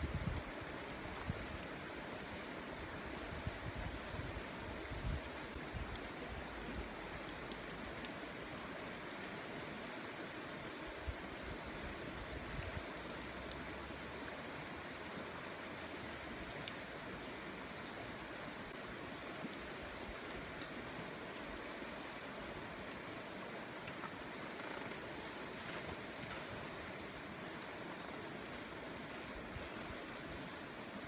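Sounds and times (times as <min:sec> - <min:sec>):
wind buffeting microphone: 0:00.0 - 0:00.5.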